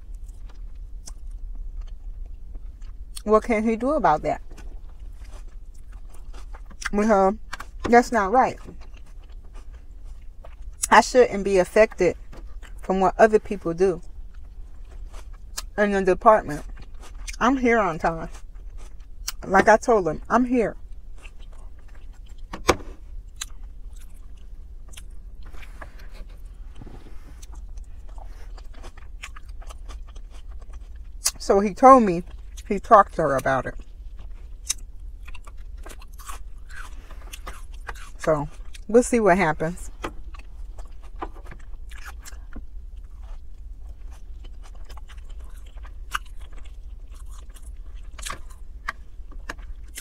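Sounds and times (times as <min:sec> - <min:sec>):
person chewing food: 0:00.0 - 0:03.2, 0:04.4 - 0:07.9, 0:08.6 - 0:10.9, 0:12.2 - 0:12.9, 0:14.0 - 0:15.8, 0:16.6 - 0:17.4, 0:18.2 - 0:19.4, 0:20.8 - 0:31.4, 0:32.2 - 0:32.7, 0:33.7 - 0:38.9, 0:39.9 - 0:50.0
low steady hum: 0:00.0 - 0:50.0.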